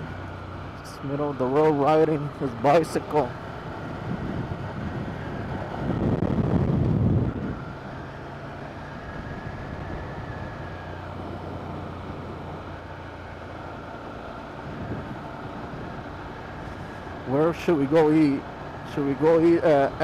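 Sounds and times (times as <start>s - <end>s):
wind noise: 3.7s - 8.0s, 14.6s - 17.2s.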